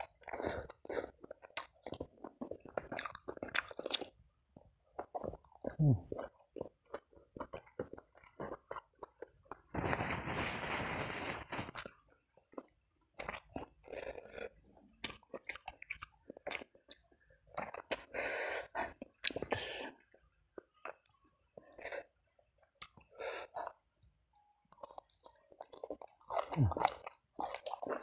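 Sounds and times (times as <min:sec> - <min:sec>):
crunchy chewing: 0:00.0 - 0:04.2, 0:24.7 - 0:28.0
person chewing with wet smacks: 0:00.0 - 0:09.7, 0:11.7 - 0:18.2, 0:18.8 - 0:23.9, 0:24.7 - 0:28.0.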